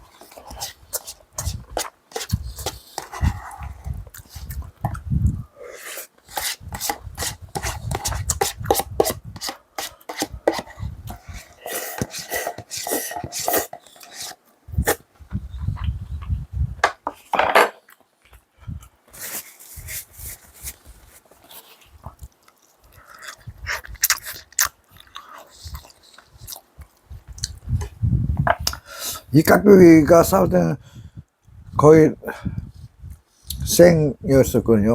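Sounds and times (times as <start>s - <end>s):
utensils scraping dishes: 5.8s - 14.4s.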